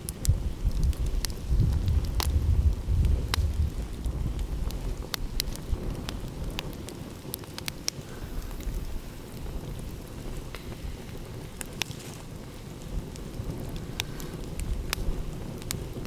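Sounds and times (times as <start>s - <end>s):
wood fire crackling: 0.0s - 16.0s
low steady rumble: 0.2s - 4.8s.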